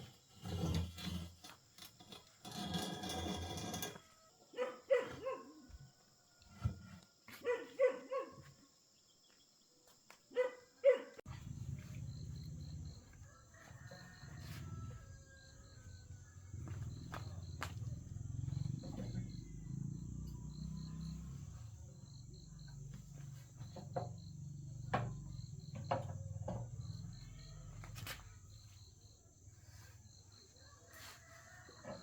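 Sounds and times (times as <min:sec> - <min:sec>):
cricket chirping: 0:07.3 - 0:32.0.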